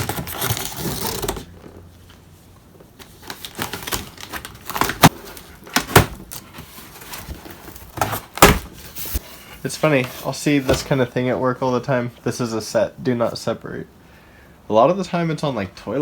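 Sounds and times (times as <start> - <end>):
cardboard package rustling: 0.0 - 1.9, 2.9 - 11.1.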